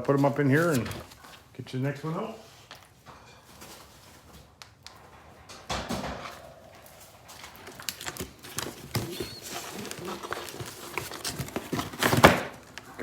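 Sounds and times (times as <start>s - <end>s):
pigeons knocking and scuffling: 3.0s - 13.0s.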